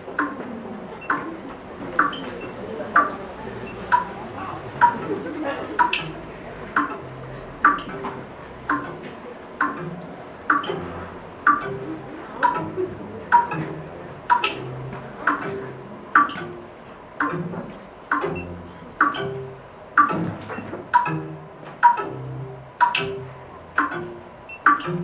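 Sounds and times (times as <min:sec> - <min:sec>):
sharp ticks with ringing ping: 0:21.0 - 0:22.2.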